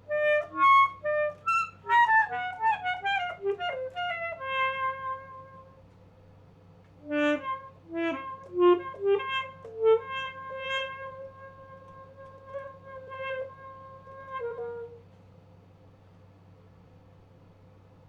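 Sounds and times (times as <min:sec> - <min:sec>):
alto saxophone solo: 0:00.0 - 0:06.0, 0:07.0 - 0:15.2.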